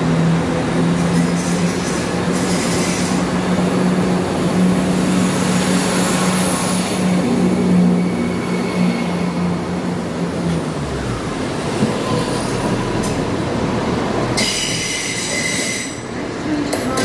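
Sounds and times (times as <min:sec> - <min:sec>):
diesel engines droning: 0:00.0 - 0:17.0
train wheels rumbling: 0:00.0 - 0:17.0.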